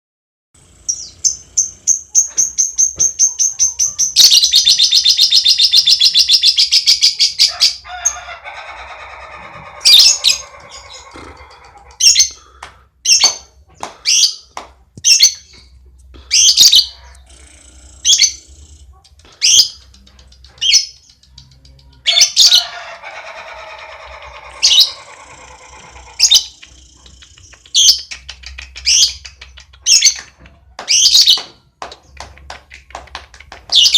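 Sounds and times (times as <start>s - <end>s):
lovebird singing: 0.8s - 7.5s, 16.3s - 32.3s.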